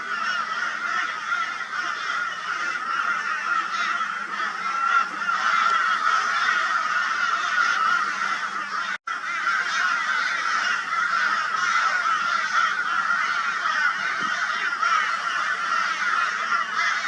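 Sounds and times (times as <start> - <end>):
crows cawing harshly: 0.0 - 17.0.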